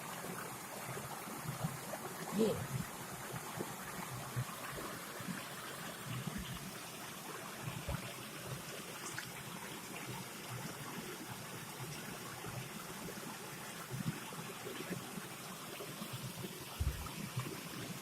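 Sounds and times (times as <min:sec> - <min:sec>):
flowing river water: 0:00.0 - 0:18.0
faint low knocks: 0:16.8 - 0:17.1.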